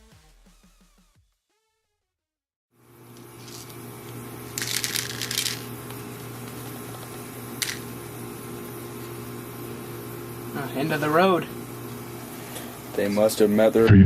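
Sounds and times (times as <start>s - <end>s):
low electrical hum: 2.8s - 14.0s.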